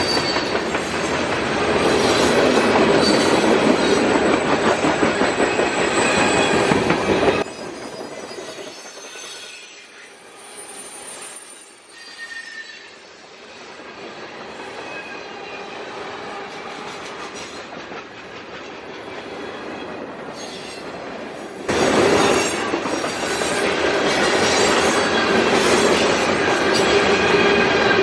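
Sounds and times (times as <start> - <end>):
freight train cars rumbling: 0.0 - 10.5, 13.2 - 28.0
faint wheel squeal: 8.3 - 13.0.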